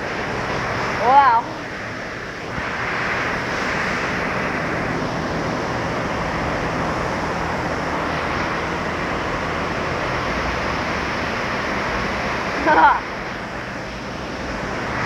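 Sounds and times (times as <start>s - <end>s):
water jets spraying: 0.0s - 15.0s.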